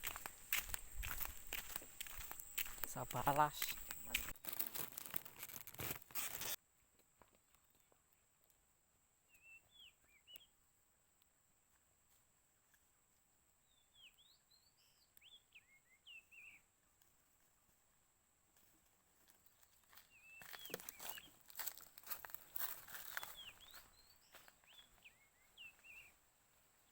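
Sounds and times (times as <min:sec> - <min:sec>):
rustling: 0:03.8 - 0:06.6.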